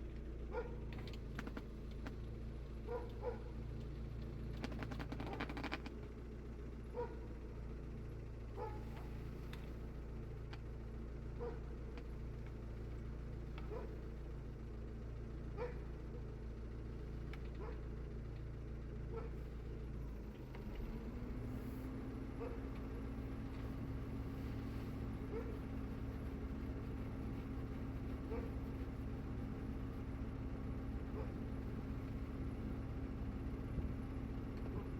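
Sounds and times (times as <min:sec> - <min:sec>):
low motor hum: 0:00.0 - 0:34.9
dog yelping: 0:25.2 - 0:25.8, 0:31.0 - 0:31.4.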